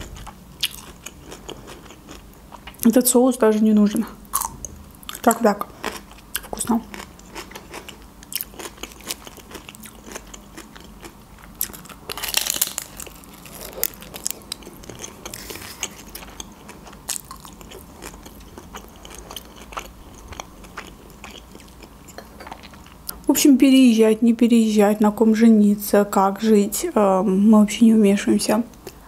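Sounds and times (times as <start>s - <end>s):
biting and chewing food: 0.0s - 2.8s, 4.3s - 23.0s
crunching bite: 5.8s - 21.8s.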